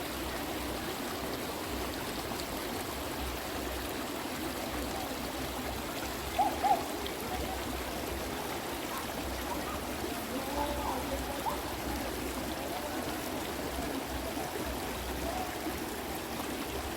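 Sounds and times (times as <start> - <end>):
stream running: 0.0 - 16.9.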